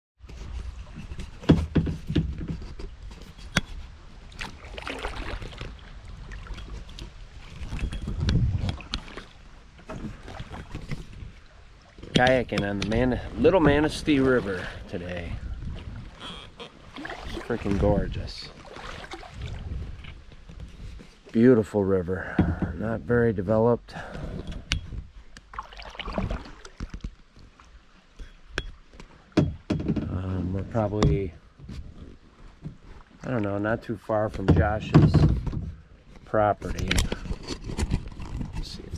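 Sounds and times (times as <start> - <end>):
paddle splashing water: 0.2 - 21.5, 23.9 - 38.9
sharp knocks: 29.4 - 30.1.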